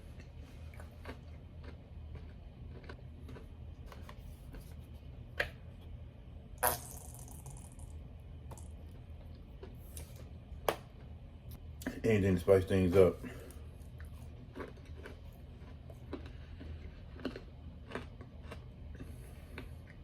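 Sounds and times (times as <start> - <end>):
chewing crispy food: 0.0 - 5.8, 8.8 - 10.4, 12.7 - 20.0
low steady hum: 0.0 - 20.0.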